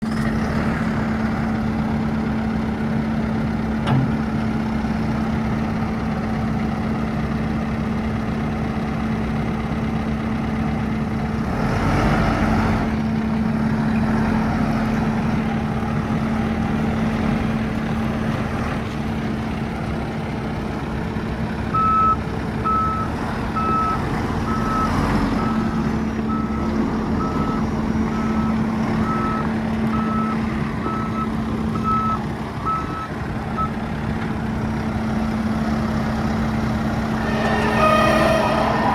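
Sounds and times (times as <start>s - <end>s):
diesel loader engine running: 0.0s - 38.9s
reversing alarm beeping: 21.8s - 33.7s, 37.0s - 38.9s.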